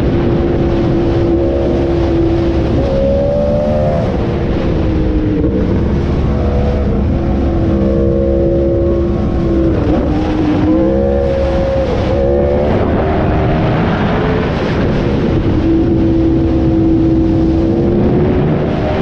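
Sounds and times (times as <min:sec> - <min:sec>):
motorcycle engine high pitch: 0:05.2 - 0:13.6.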